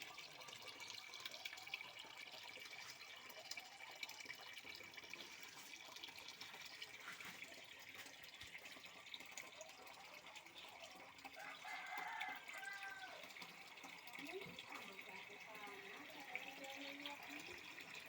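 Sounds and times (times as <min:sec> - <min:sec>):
trickling water: 0:00.0 - 0:18.0
water drips: 0:00.0 - 0:18.0.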